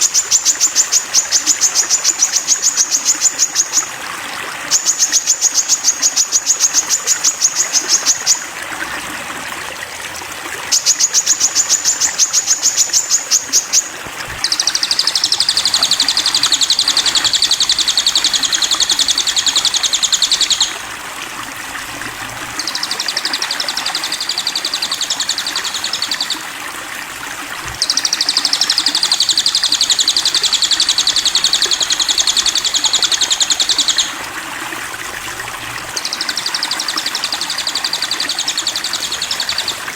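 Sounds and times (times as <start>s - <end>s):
bird singing high trills: 10.7s - 20.9s, 22.4s - 26.4s, 27.6s - 34.3s, 35.3s - 39.9s.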